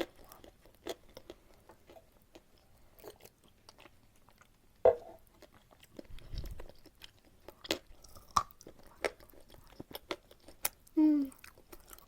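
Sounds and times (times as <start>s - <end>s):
chalk crunching chews: 5.2s - 12.0s.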